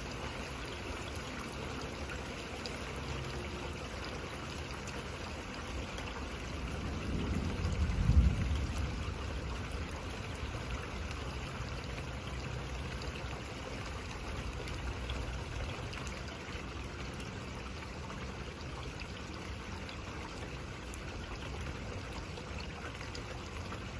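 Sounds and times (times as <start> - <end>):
low rumble of thunder: 6.3 - 11.7
rain hissing: 6.6 - 11.7.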